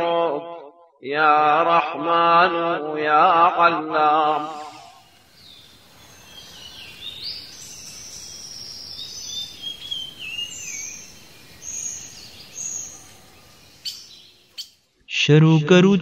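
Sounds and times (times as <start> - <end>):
songbirds chirping and whistling: 4.2 - 14.9
faint steady hiss: 4.3 - 14.6.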